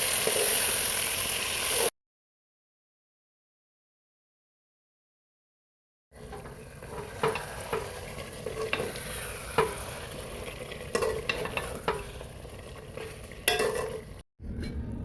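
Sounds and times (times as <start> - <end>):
curry sizzling in pan: 0.0 - 1.9, 6.2 - 14.2
spoon knocking against pan: 6.3 - 8.9, 13.0 - 14.0.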